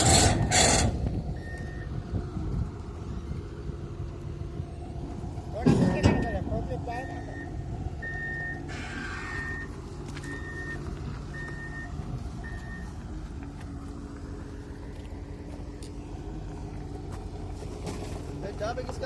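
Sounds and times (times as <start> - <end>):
diesel engine running: 0.0 - 19.0
reversing alarm beeps: 7.0 - 8.7, 9.3 - 13.0.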